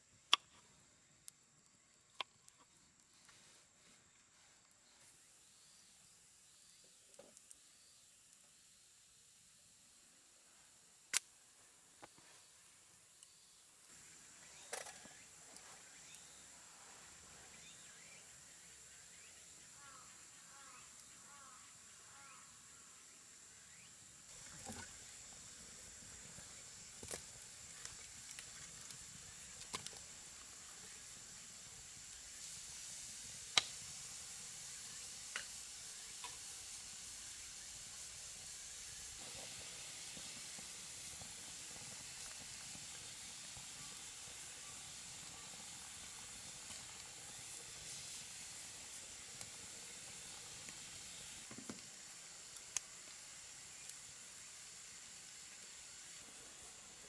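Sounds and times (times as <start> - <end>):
campfire crackling and popping: 11.1 - 11.4, 24.2 - 57.0.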